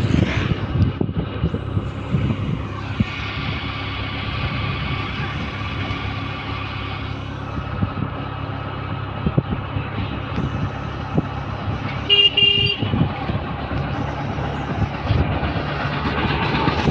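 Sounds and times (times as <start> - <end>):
road traffic rumble: 0.0 - 16.9
vehicle horn toots: 12.0 - 13.0.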